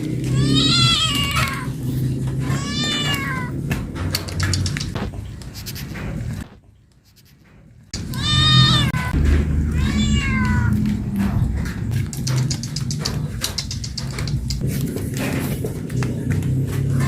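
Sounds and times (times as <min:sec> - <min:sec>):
cat meowing: 0:00.2 - 0:01.8, 0:02.4 - 0:03.6, 0:08.0 - 0:11.0
sharp clicks: 0:04.1 - 0:05.5, 0:10.7 - 0:14.6.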